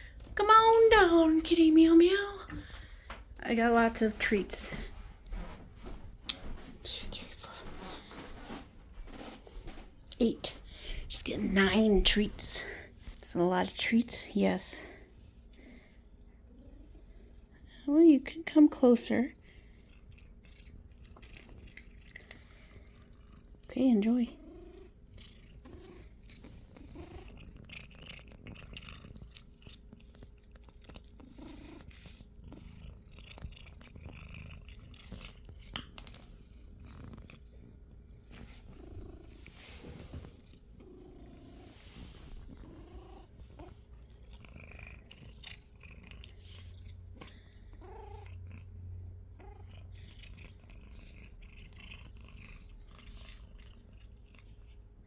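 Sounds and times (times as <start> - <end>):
cat purring: 0.0 - 55.0
cat crunching dry treats: 19.7 - 23.6, 25.4 - 37.8.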